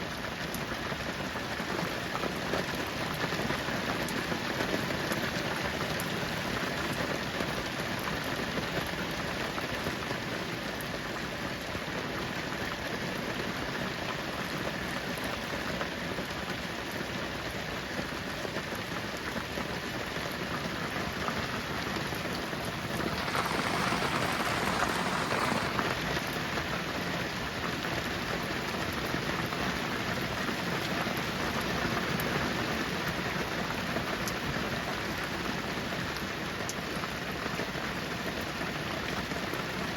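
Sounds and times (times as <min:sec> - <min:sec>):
heavy rain: 0:20.5 - 0:26.5.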